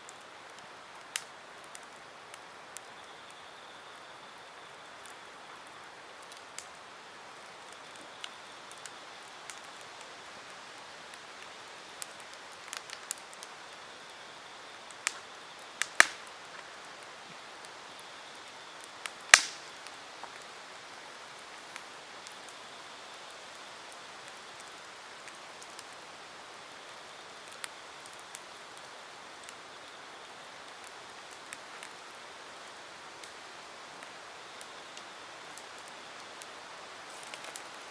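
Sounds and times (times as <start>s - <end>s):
campfire crackling: 0.0s - 37.9s
loud sharp fire pops: 15.0s - 16.7s, 19.0s - 20.5s.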